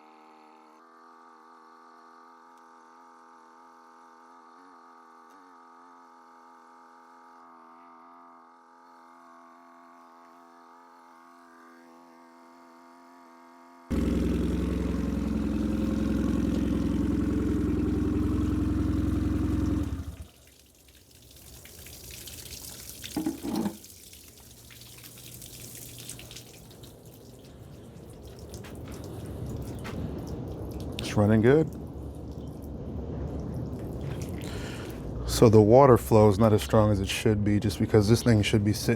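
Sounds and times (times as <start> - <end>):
water stream splashing: 13.9 - 35.0
outboard motor running: 13.9 - 37.0
faint steady hum: 13.9 - 38.9.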